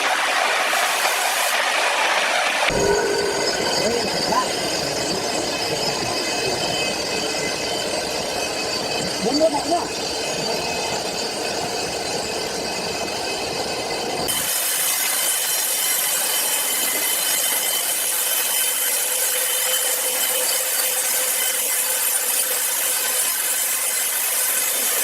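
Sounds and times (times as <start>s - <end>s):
saw cutting through log: 0.0s - 13.6s, 14.2s - 25.0s.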